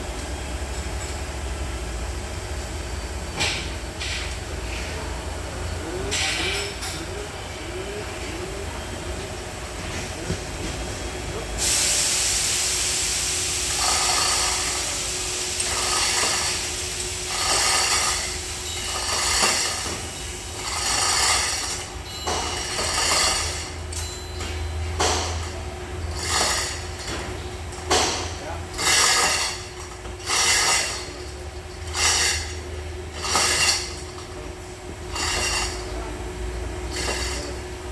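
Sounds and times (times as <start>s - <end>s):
loud hissing: 11.6s - 19.8s.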